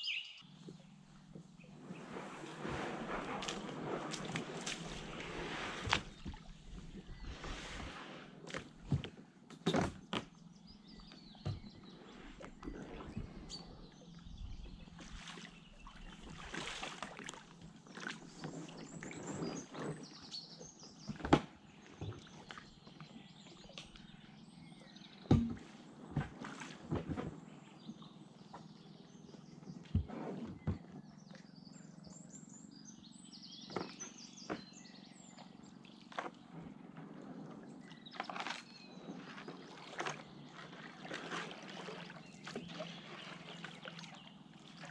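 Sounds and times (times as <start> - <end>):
birds calling: 0.0 - 7.8, 27.1 - 37.0
kayak paddle splashing in water: 1.6 - 9.2, 15.0 - 20.2, 33.8 - 44.9
sharp knocks: 25.3 - 25.6.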